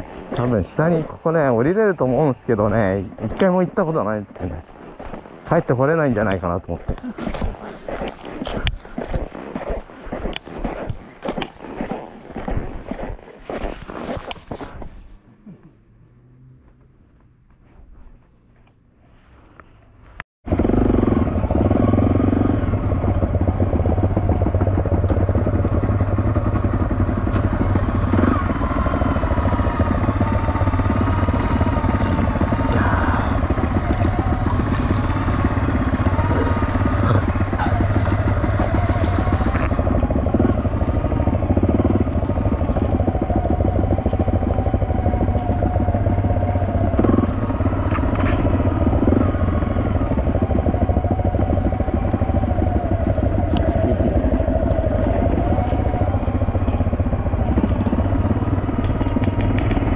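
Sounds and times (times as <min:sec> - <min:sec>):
motorcycle engine running: 0:00.0 - 0:11.0, 0:20.5 - 0:59.9
grass brushing against bike: 0:30.8 - 0:40.3.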